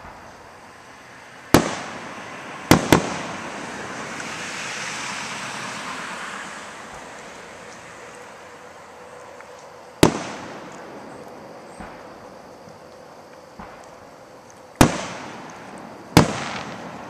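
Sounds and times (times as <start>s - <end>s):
fireworks hiss: 0.0s - 17.0s
fireworks bangs: 1.4s - 7.8s, 10.0s - 12.6s, 13.5s - 14.2s, 14.8s - 17.0s.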